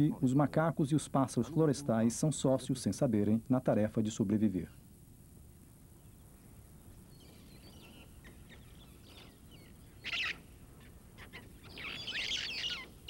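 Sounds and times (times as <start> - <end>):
birds chattering: 6.0 - 13.0
flock of birds chirping: 6.0 - 13.0
loud harsh bird call: 7.6 - 13.0.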